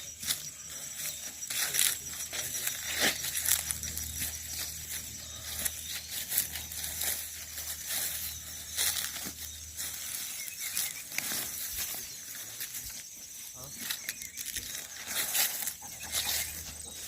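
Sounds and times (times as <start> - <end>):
footsteps crunching through dry leaves: 0.0 - 17.0.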